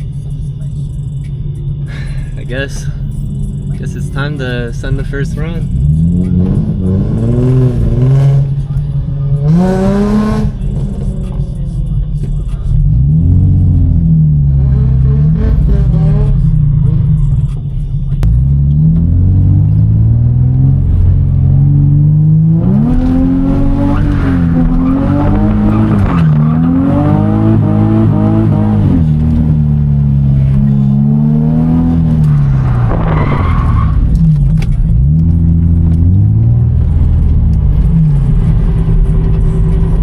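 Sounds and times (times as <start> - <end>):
car engine revving hard: 5.6 - 8.6, 9.3 - 11.1, 12.9 - 16.6, 18.2 - 34.0.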